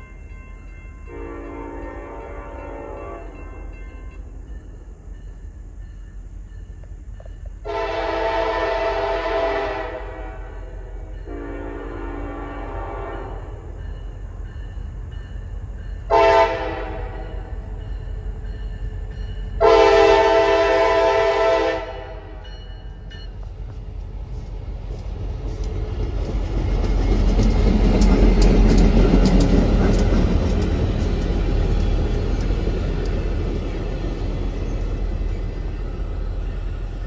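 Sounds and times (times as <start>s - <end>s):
locomotive horn blast: 1.1s - 3.4s, 7.6s - 13.5s, 16.1s - 17.6s, 19.6s - 22.5s
locomotive engine rumble: 6.2s - 37.0s
wheels clicking over rail joints: 22.8s - 37.0s.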